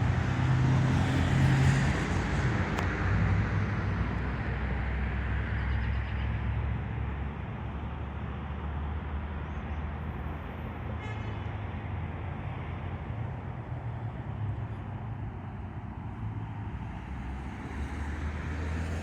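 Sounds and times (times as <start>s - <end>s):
low rumble of traffic: 0.0s - 19.0s
vehicle passing by: 16.0s - 19.0s.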